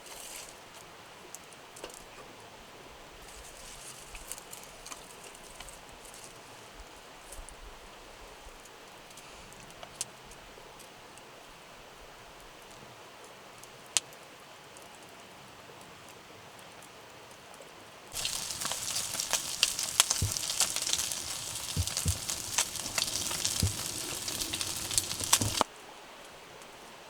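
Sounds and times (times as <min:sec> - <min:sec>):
sizzling with pops and crackles: 0:18.2 - 0:25.7.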